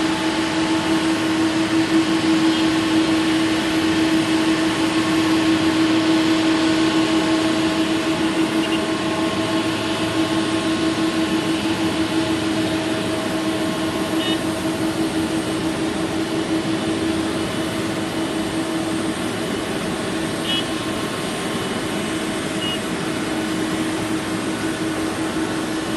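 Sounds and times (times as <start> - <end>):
jet engines whining: 0.0 - 25.9.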